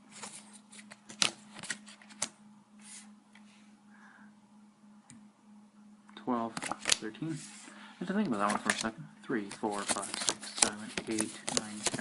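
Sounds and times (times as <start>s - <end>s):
cards dealt on a table: 8.3s - 12.0s.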